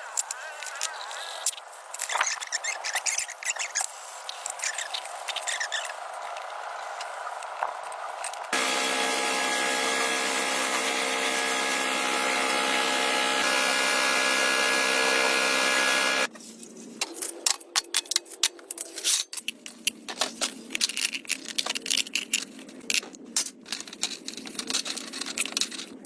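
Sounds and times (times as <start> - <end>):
power tool running: 8.6 - 16.3
scraping and handling noises: 16.3 - 26.0.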